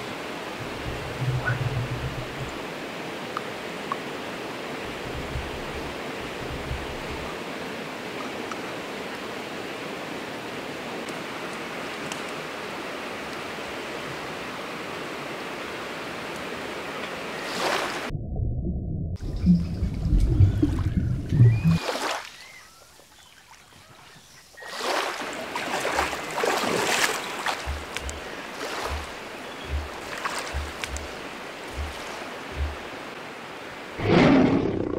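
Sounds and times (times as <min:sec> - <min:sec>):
steady rushing noise: 0:04.8 - 0:07.4, 0:27.5 - 0:33.4
faint ticks: 0:27.5 - 0:28.3, 0:29.7 - 0:32.8.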